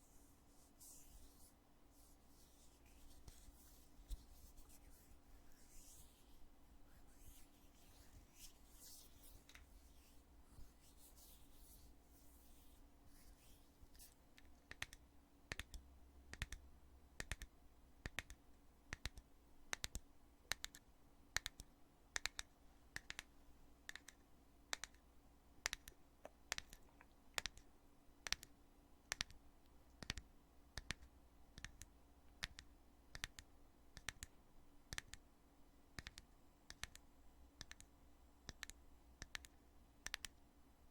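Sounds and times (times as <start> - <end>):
soft rubbing and handling: 0.0 - 14.5.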